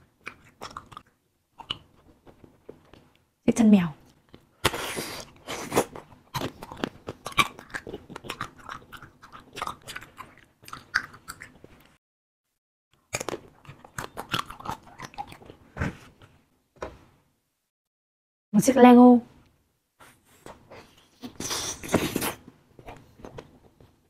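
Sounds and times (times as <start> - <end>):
chewing candy: 0.1 - 3.0, 4.1 - 12.0, 13.0 - 15.7.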